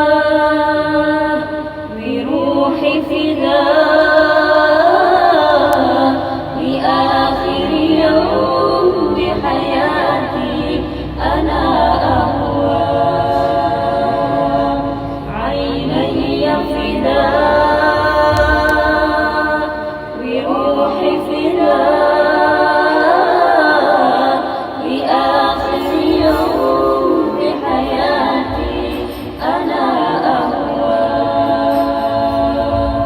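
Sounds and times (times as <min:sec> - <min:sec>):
vocal group singing a cappella: 0:00.0 - 0:33.0.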